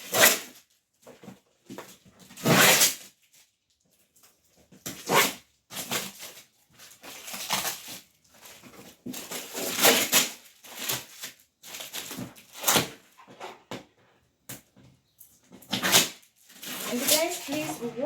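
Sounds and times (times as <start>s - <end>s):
packaging rustling and crackling: 5.7s - 13.3s, 15.3s - 18.0s.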